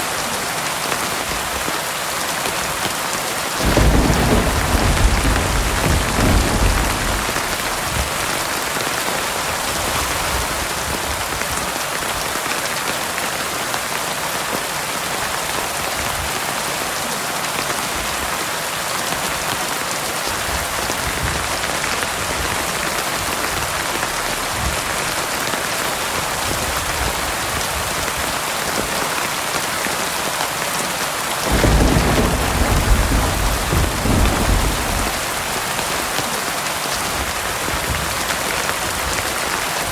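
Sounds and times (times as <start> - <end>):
heavy rain falling: 0.0 - 39.9
low thunder rumble: 3.6 - 11.2, 31.4 - 36.0.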